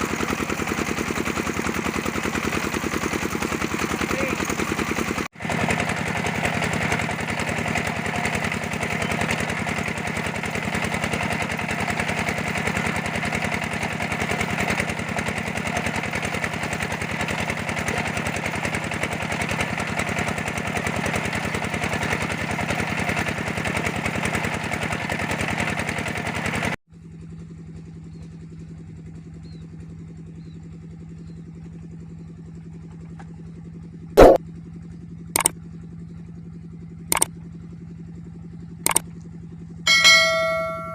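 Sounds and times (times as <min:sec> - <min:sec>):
brick press engine running: 0:00.0 - 0:26.8, 0:31.2 - 0:34.4, 0:35.3 - 0:36.2, 0:36.8 - 0:40.9
sharp click: 0:34.2 - 0:34.4, 0:38.9 - 0:39.1.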